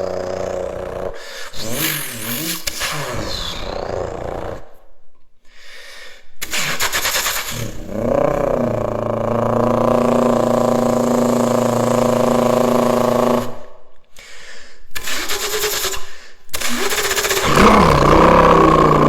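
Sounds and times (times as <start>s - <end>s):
person imitating revving car engine: 0.0s - 4.8s, 7.4s - 13.8s, 16.6s - 19.0s.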